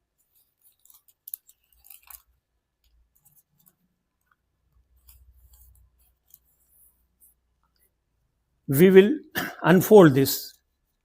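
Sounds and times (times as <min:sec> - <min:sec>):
paper crinkling as folded: 0:00.1 - 0:07.3.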